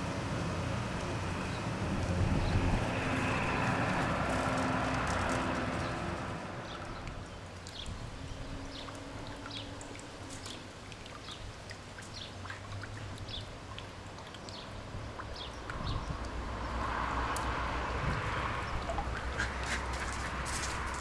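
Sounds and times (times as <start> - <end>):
small birds chirping: 6.7 - 16.8.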